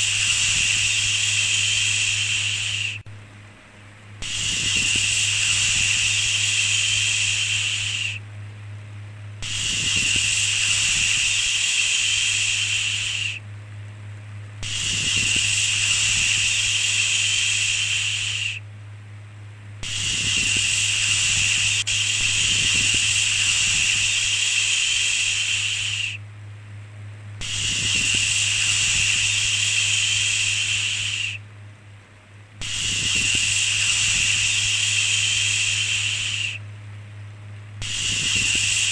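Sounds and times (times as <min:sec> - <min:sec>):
shushing sounds: 0:00.0 - 0:03.0, 0:04.2 - 0:08.2, 0:09.4 - 0:13.4, 0:14.6 - 0:18.6, 0:19.8 - 0:26.2, 0:27.4 - 0:31.4, 0:32.6 - 0:36.6, 0:37.8 - 0:38.9
steady low hum: 0:00.0 - 0:38.9.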